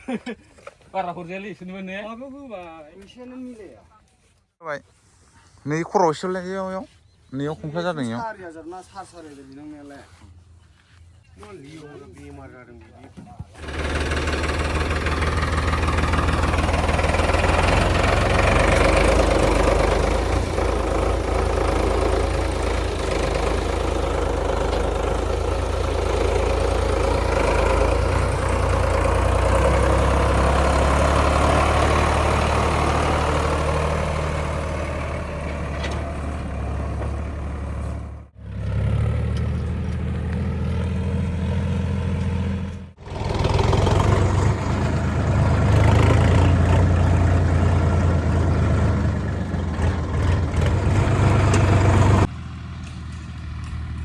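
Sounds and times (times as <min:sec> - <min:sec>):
tractor diesel engine clattering: 0:12.8 - 0:54.0.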